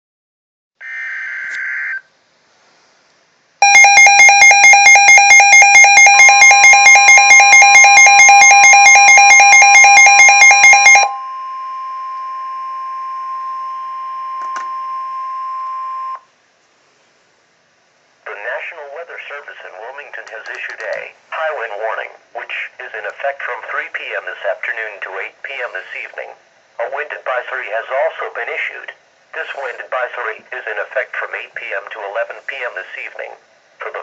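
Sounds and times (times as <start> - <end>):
steady alert tone: 3.6 - 11.5
pulsing two-tone alarm: 3.6 - 16.2
short tone: 3.6 - 16.2.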